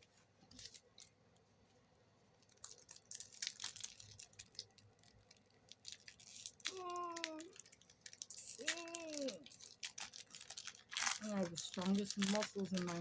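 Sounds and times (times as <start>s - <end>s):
foil wrapper tearing and crinkling: 2.4s - 13.0s.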